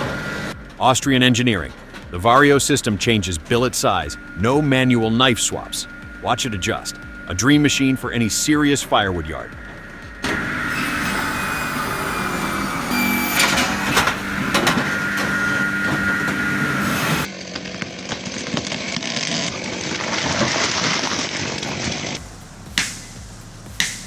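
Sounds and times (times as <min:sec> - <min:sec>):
rough saw noise: 0:00.0 - 0:17.3
machine sawing logs with whine: 0:00.0 - 0:24.0.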